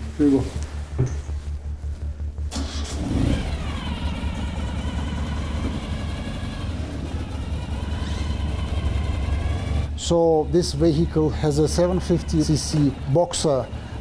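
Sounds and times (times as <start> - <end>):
motorcycle engine running: 0.1 - 14.0.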